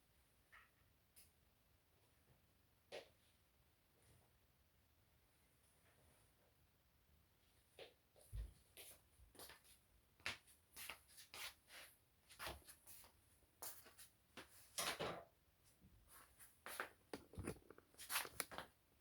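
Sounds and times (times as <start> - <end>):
small clicks and knocks: 17.1 - 18.7.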